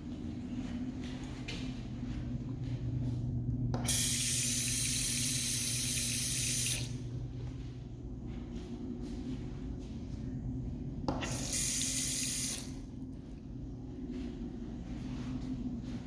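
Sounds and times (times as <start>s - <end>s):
steady low hum: 0.0s - 16.0s
water running from sink tap: 3.8s - 7.0s, 11.2s - 12.8s.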